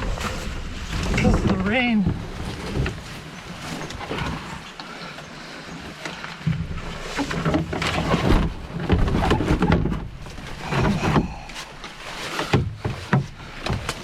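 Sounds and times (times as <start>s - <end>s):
rustling: 0.0s - 14.0s
heavy grunting breaths: 10.4s - 12.0s.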